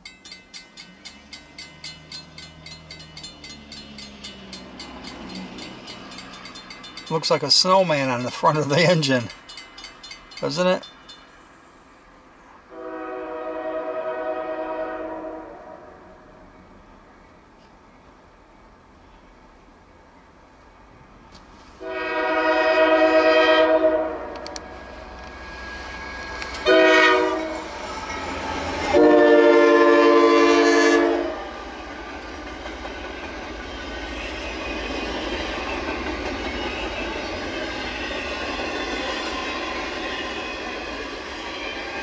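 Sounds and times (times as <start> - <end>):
freight train wheels rumbling: 0.0 - 15.4, 21.0 - 42.0
locomotive air horn blasts: 12.7 - 16.2, 21.8 - 24.5, 26.6 - 27.6, 28.9 - 31.4.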